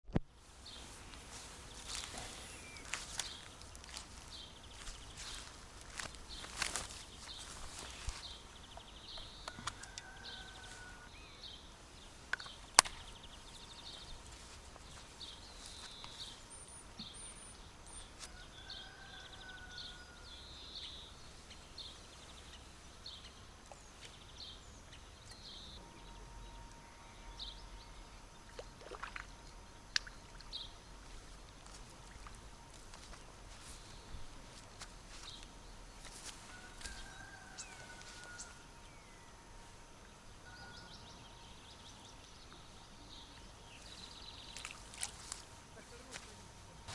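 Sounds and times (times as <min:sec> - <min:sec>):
small birds chirping: 0:00.4 - 0:46.9
whistled bird calls: 0:15.6 - 0:19.6.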